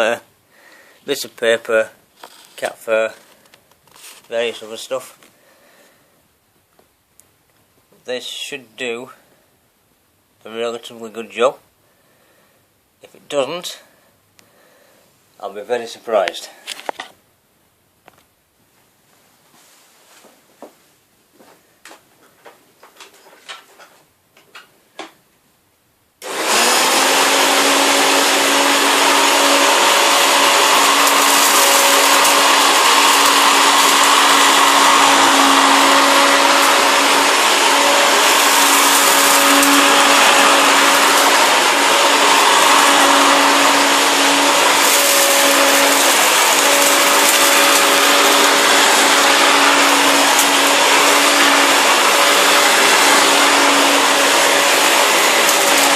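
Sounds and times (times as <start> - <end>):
upright vacuum cleaner running: 26.2 - 55.9.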